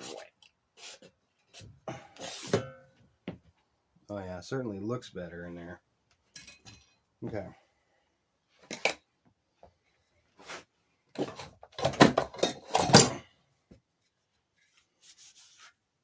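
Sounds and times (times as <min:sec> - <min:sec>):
metal parts knocking and clattering: 0:11.2 - 0:13.2.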